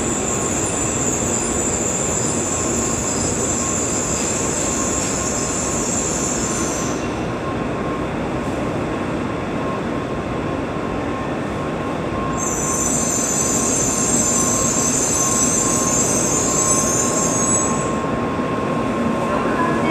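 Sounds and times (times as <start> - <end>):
high-pitched train squeal: 0.0 - 7.6, 11.2 - 19.9
train rolling noise: 0.0 - 19.9.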